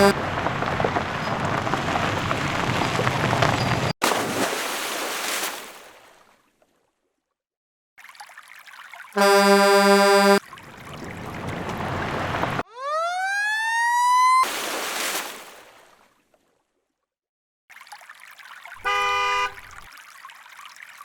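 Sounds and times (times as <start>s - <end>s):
loud horn blast: 9.2s - 10.4s, 18.8s - 19.8s.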